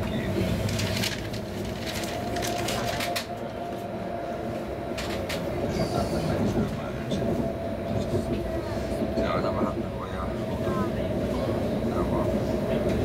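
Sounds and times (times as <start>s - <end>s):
train interior rumble and hum: 0.0s - 13.0s.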